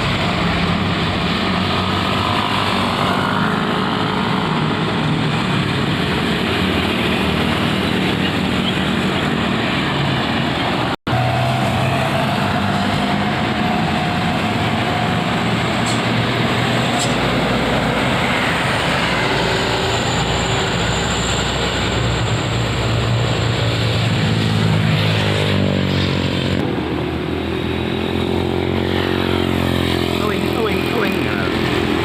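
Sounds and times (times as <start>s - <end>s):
road traffic: 0.0s - 32.0s
heavy truck engine running: 3.6s - 24.9s.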